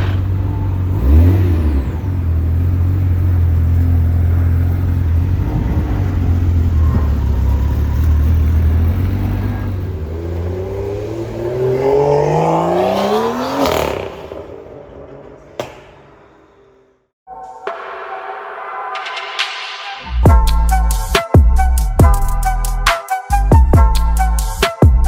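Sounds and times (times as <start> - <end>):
car engine accelerating: 0.0 - 17.1.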